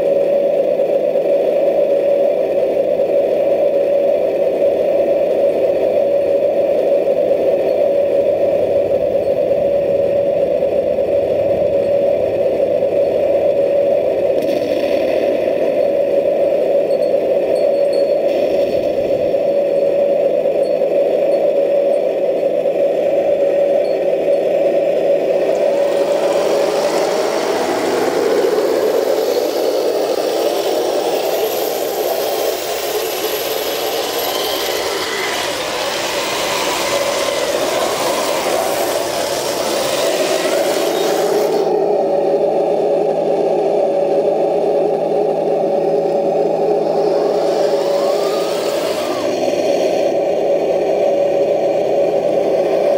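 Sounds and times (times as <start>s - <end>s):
model tank motor drone: 21.9s - 52.9s.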